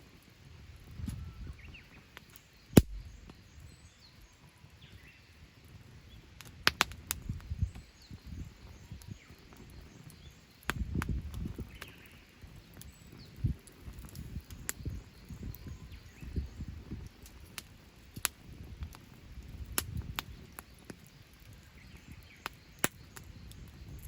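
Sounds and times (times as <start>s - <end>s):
campfire crackling and popping: 0.0s - 24.0s
faint bird chirps: 0.9s - 6.2s, 14.3s - 16.8s
low rumble: 2.8s - 3.3s.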